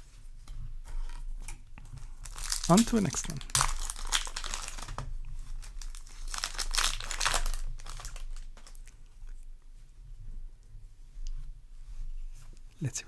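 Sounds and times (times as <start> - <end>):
foil wrapper crinkling and tearing: 1.9 - 9.0.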